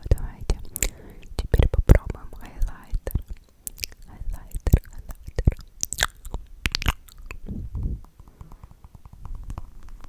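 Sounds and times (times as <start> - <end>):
wet mouth clicks and smacks: 0.0 - 10.0
biting and chewing: 3.0 - 10.0.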